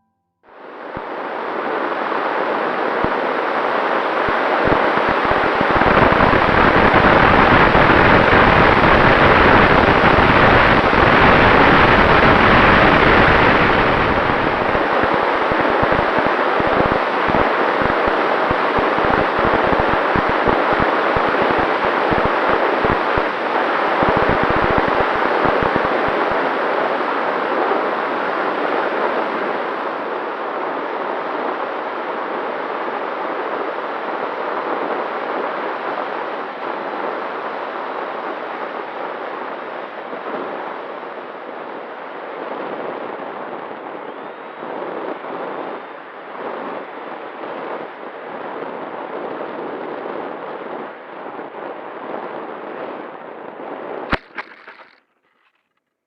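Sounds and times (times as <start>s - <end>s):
wind noise on microphone: 0.6s - 55.6s
sharp knock: 54.1s - 55.0s.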